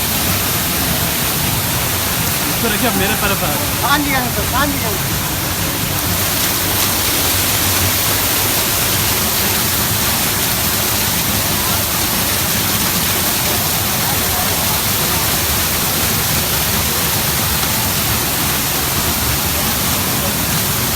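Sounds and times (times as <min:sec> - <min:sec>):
waterfall rushing: 0:00.0 - 0:20.9.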